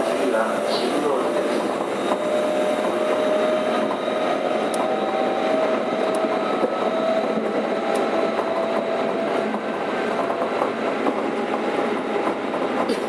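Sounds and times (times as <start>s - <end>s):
train rolling noise: 0.0s - 13.0s.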